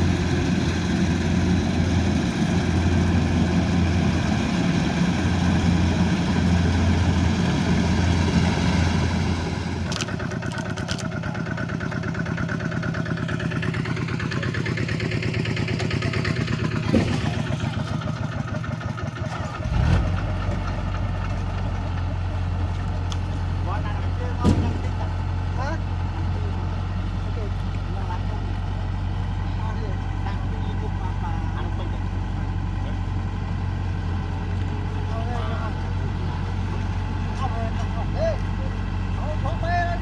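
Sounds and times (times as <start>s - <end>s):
combine harvester engine running: 0.0s - 40.0s
thump: 16.8s - 17.4s, 24.4s - 24.8s.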